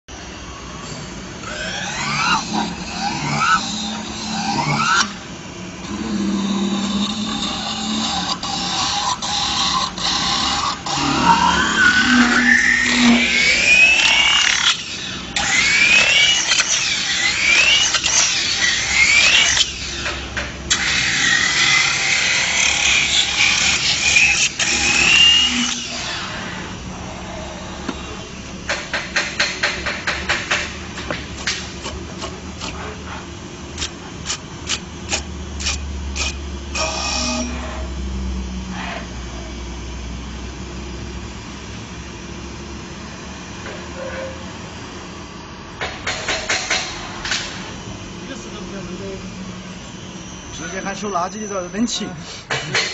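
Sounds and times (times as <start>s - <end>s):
roller squealing on spinning metal: 10.9s - 20.0s.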